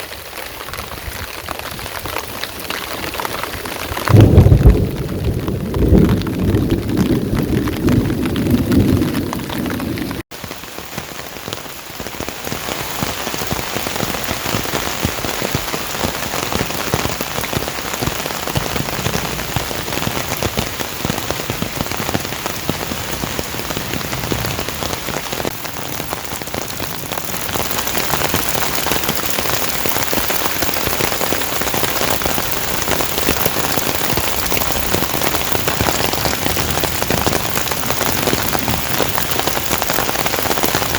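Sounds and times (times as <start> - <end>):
heavy rain falling: 0.0 - 40.9
low thunder rumble: 3.9 - 10.2, 32.2 - 40.9.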